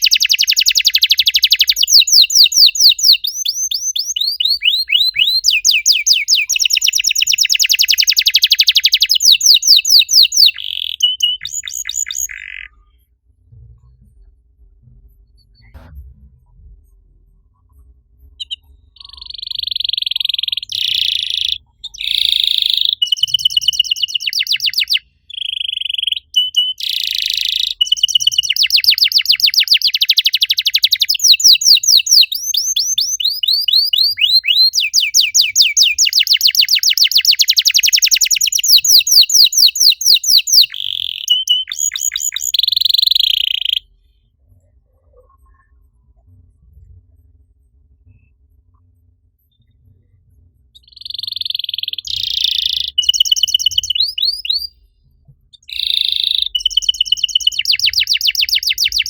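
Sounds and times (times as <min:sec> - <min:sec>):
canary singing rapid trills: 0:00.0 - 0:12.9, 0:18.4 - 0:43.9, 0:50.8 - 0:54.7, 0:55.6 - 0:59.0.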